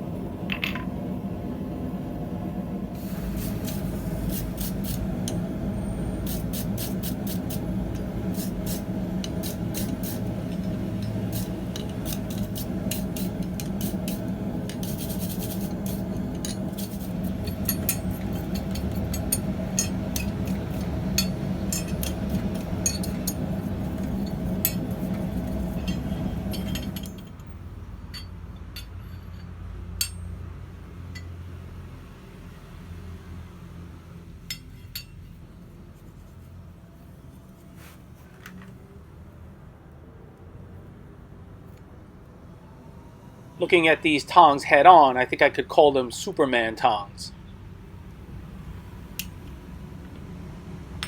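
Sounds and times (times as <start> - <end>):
machine humming: 0.0 - 27.4
metal tongs clinking: 6.2 - 27.5.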